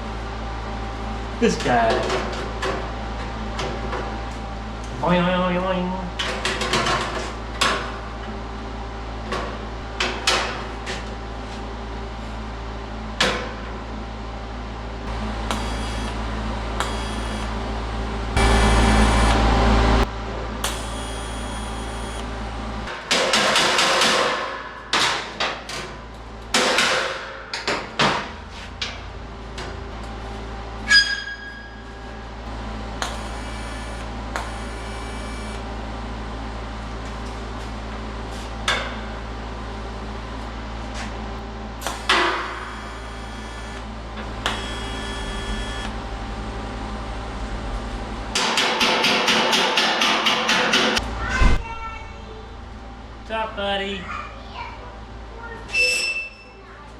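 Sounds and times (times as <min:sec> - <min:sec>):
steady low hum: 0:00.0 - 0:55.7
hammer striking sheet steel: 0:22.9 - 0:25.6, 0:26.5 - 0:27.6, 0:48.4 - 0:51.0.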